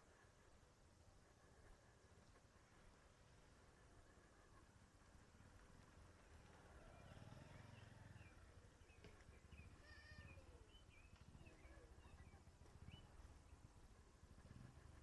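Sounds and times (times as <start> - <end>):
distant animal calls: 9.5 - 10.8.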